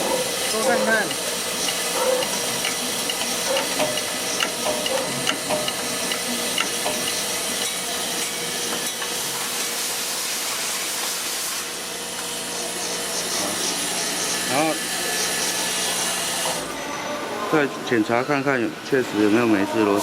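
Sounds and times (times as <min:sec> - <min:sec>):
machine hiss: 0:00.0 - 0:16.9.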